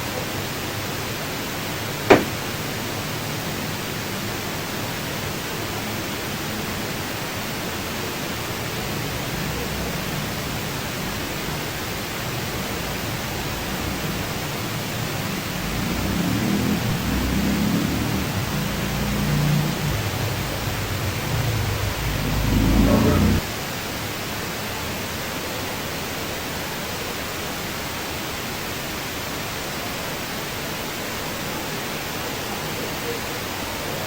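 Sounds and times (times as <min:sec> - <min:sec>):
steady hiss: 0:00.0 - 0:34.0
sharp knock: 0:02.1 - 0:02.4.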